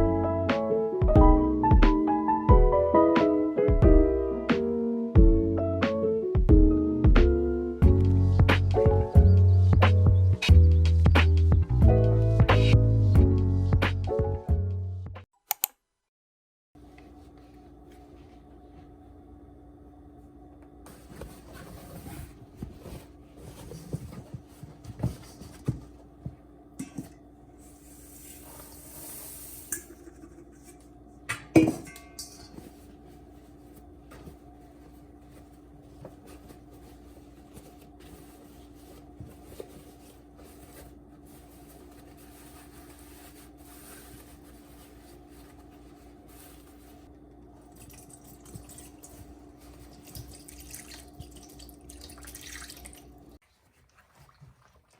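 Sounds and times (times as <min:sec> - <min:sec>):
dishes and utensils clinking: 0:29.7 - 0:32.8.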